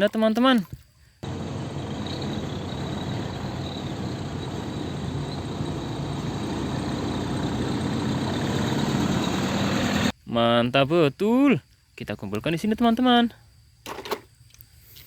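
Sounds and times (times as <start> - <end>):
truck engine idling: 1.2 - 10.1.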